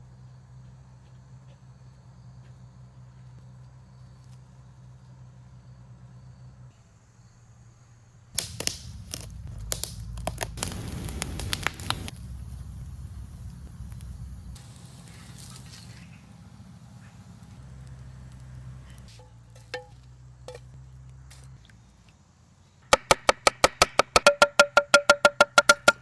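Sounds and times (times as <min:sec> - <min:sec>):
low steady hum: 0:05.6 - 0:22.0.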